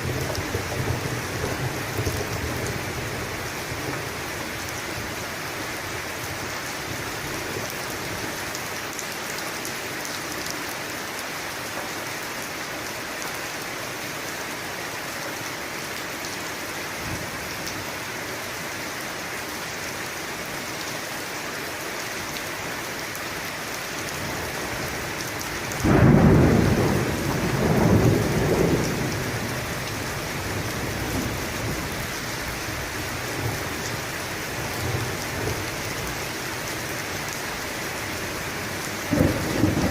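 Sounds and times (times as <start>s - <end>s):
thunderclap and rumbling thunder: 0.0s - 4.0s, 25.8s - 32.0s, 38.8s - 39.9s
rain falling: 0.0s - 39.9s.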